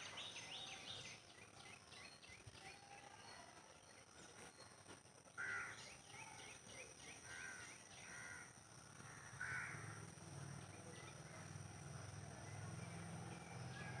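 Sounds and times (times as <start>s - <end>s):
small birds chirping: 0.0s - 4.9s
crow cawing: 7.3s - 8.5s, 9.1s - 10.0s.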